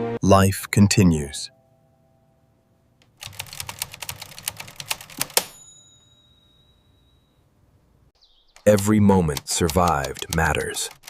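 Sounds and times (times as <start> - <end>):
bell-like ding: 5.4 - 7.4
rapid clicks: 8.5 - 11.0.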